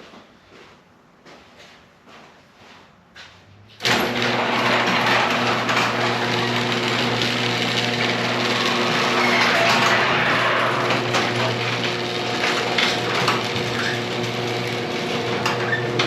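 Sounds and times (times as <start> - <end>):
garage door opener motor humming: 3.8 - 16.0.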